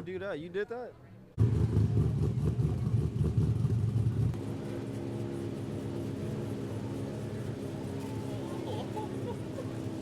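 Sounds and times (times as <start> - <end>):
car engine running: 1.4 - 10.0.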